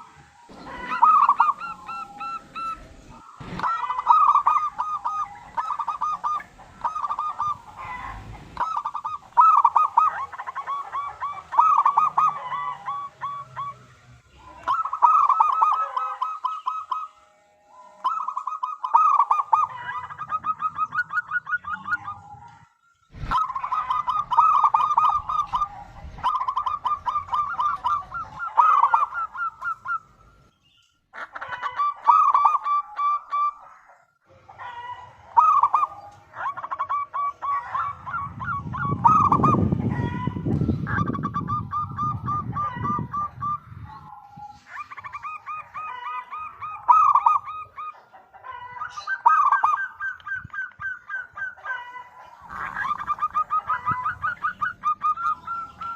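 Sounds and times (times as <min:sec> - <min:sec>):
doves cooing: 0:00.0 - 0:30.5, 0:31.1 - 0:55.9.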